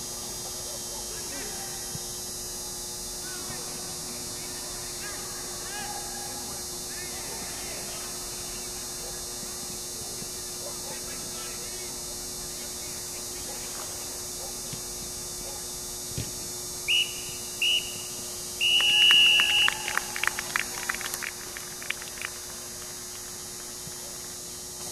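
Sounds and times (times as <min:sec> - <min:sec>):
steady low hum: 0:00.0 - 0:24.9
referee's whistle blasts: 0:16.9 - 0:20.2
hand clapping: 0:18.7 - 0:24.9.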